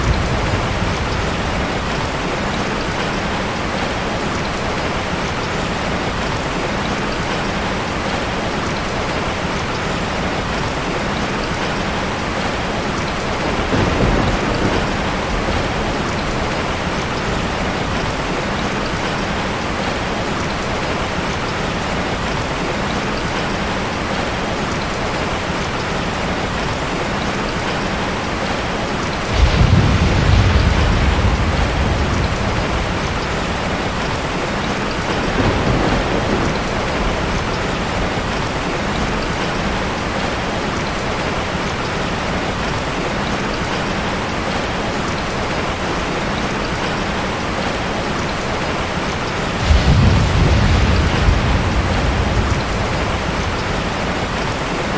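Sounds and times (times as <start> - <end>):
thunder rumbling: 0.0 - 3.9, 11.8 - 20.5, 29.1 - 40.8, 49.2 - 54.9
heavy rain: 0.0 - 54.9.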